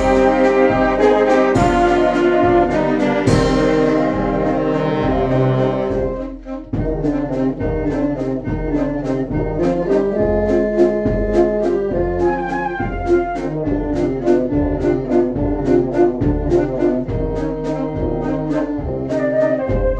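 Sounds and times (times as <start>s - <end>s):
percussion strikes: 0.0s - 7.5s
brass band chords: 0.0s - 19.9s.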